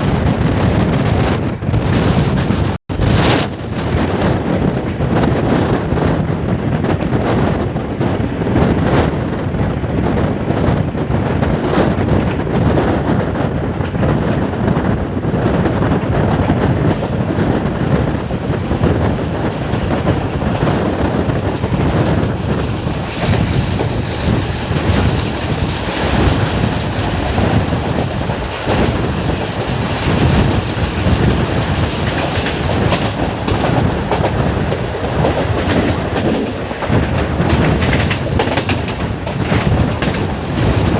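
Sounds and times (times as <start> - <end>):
wheels rumbling on rails: 0.0 - 40.9
wheels clicking over track: 15.8 - 40.9.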